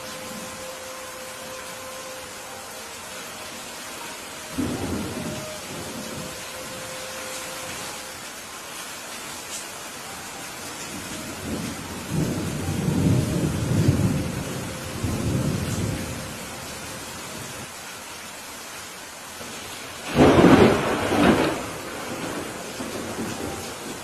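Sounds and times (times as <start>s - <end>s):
steady rain: 0.0s - 24.0s
rolling thunder rumble: 11.0s - 16.6s, 20.0s - 24.0s
loud thunderclap: 20.0s - 23.6s.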